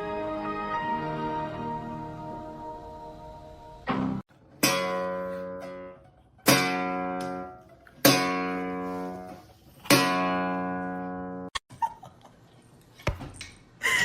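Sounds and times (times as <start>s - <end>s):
strummed guitar chords: 3.8s - 9.1s.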